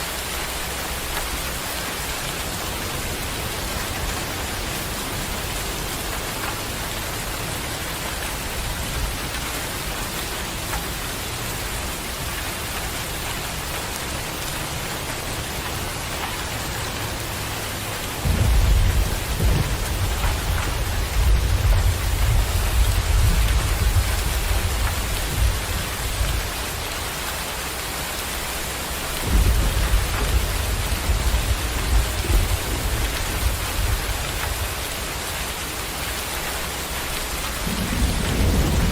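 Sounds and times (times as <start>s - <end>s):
heavy rain: 0.0s - 38.9s
thunder rumbling: 14.2s - 27.0s, 29.1s - 35.0s, 37.4s - 38.9s.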